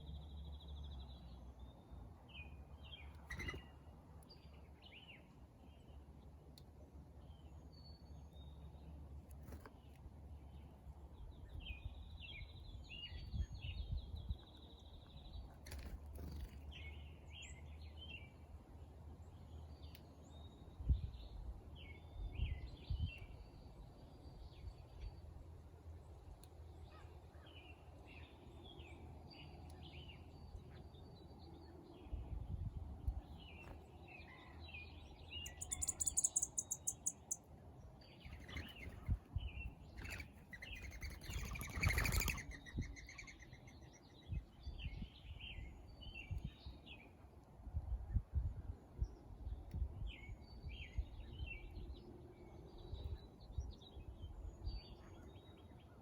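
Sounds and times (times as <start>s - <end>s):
songbirds chirping: 0.0s - 56.0s
high rapid bird trill: 35.5s - 37.4s, 40.0s - 43.3s.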